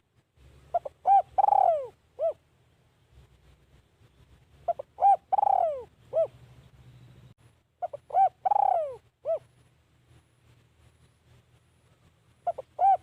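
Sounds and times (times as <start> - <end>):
dove cooing: 0.7 - 2.4, 4.6 - 6.4, 7.8 - 9.5, 12.4 - 13.0.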